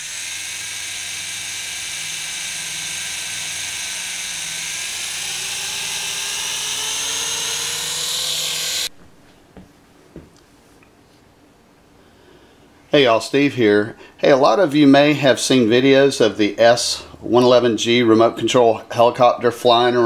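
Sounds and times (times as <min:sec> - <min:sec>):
toy helicopter rotor motors whining: 0:00.0 - 0:08.9.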